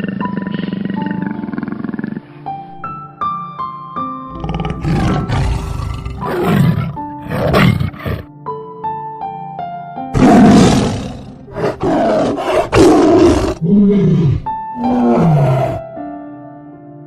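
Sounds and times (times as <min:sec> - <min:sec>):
soft background music: 0:00.0 - 0:17.0
large animal roaring: 0:04.3 - 0:08.3, 0:10.2 - 0:15.9.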